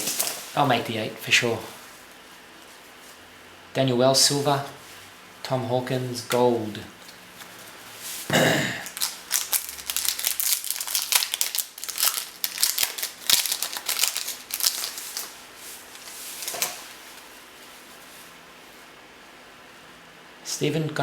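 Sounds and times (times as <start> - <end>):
card pack wrapper crinkling: 8.8 - 16.9.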